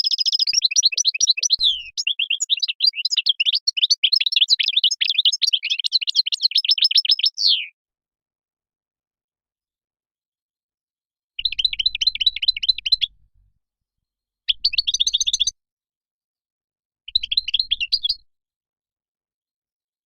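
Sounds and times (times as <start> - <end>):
goldfinch twittering trills: 0.0 - 7.7.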